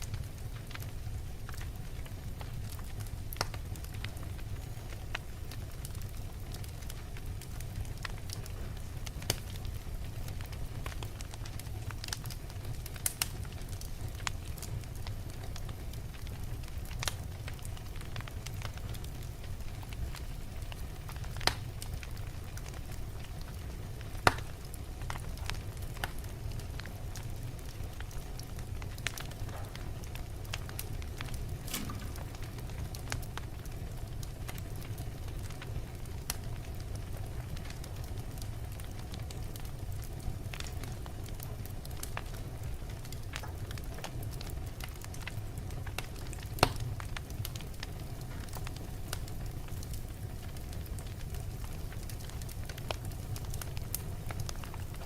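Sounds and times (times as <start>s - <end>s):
fire rumbling and crackling: 0.0s - 55.0s
loud sharp pops of fire: 0.0s - 55.0s.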